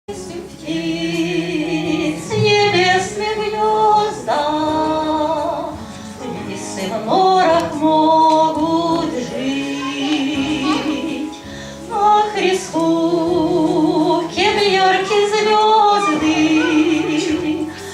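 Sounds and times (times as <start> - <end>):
hymn singing with accompaniment: 0.1 - 17.9.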